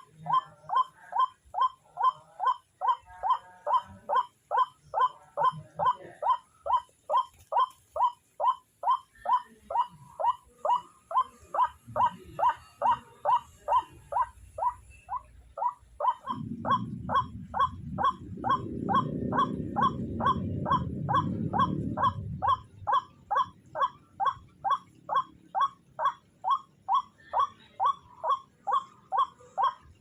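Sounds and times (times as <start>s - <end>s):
waterhen calling: 0.0s - 30.0s
low rumbling noise: 11.8s - 30.0s.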